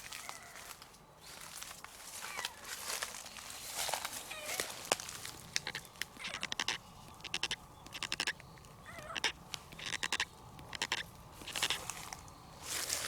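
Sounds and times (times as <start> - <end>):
footsteps crunching: 0.0 - 13.0
cat meowing faintly: 0.1 - 0.7.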